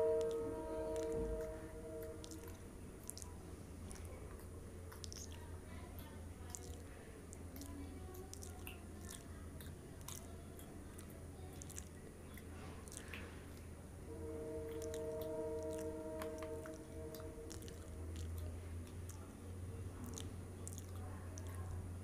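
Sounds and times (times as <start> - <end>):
steady multi-pitch tone: 0.0 - 2.7, 14.0 - 18.4
person chewing with mouth clicks: 0.1 - 13.7, 14.7 - 22.0.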